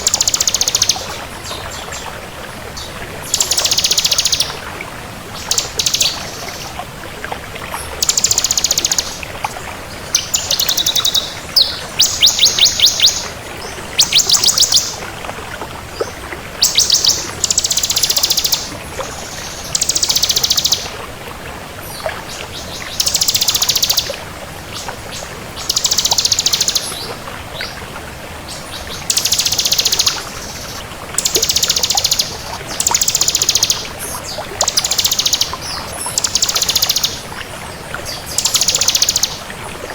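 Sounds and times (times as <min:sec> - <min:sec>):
bird singing rapid trills: 0:00.0 - 0:01.6, 0:03.3 - 0:04.5, 0:05.4 - 0:06.6, 0:08.0 - 0:09.2, 0:10.1 - 0:13.3, 0:14.0 - 0:15.0, 0:16.6 - 0:20.9, 0:22.9 - 0:24.1, 0:25.6 - 0:27.1, 0:29.0 - 0:37.2, 0:38.2 - 0:39.4.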